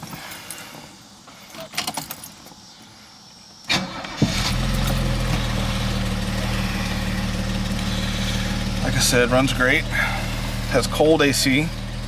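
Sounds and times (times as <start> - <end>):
car engine idling: 3.7 - 12.0
engine starter cranking: 3.7 - 12.0.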